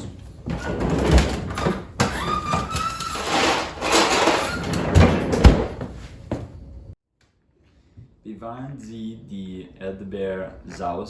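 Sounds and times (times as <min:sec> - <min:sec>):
drawer sliding and rustling: 0:00.4 - 0:06.2.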